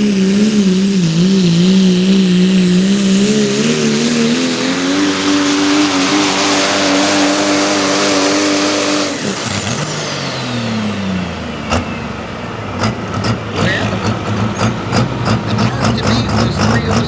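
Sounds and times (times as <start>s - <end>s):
high whine: 0.0s - 12.8s
truck engine running under load: 0.0s - 17.0s.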